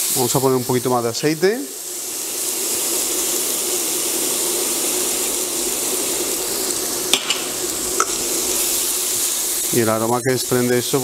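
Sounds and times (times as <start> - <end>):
paste sizzling in hot oil: 0.0 - 11.0
oil pouring: 1.8 - 10.0.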